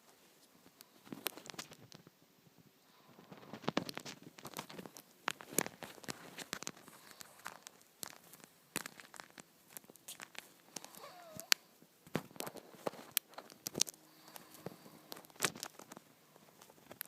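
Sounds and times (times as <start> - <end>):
parrot claws and beak tapping: 3.3 - 16.0.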